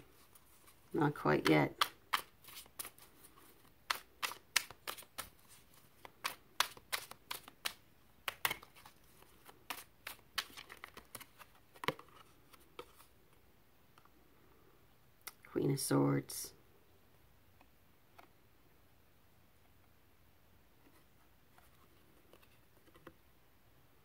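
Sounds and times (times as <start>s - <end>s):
cards being shuffled: 0.0s - 13.1s.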